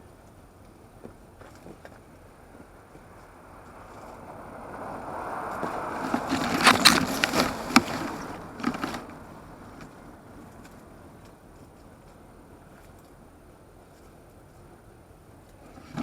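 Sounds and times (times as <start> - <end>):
gusting wind: 2.0 - 13.8.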